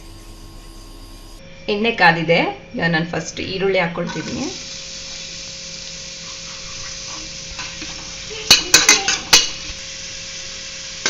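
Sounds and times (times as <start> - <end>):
onions sizzling in oil: 4.1 - 11.0
spatula clacking on pan: 8.5 - 9.6.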